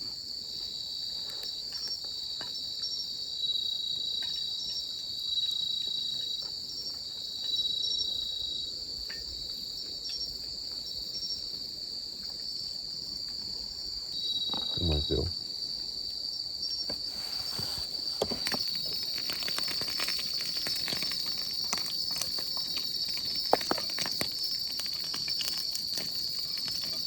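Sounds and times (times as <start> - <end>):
insects trilling: 0.0 - 27.0
louder insect singing: 14.2 - 15.7.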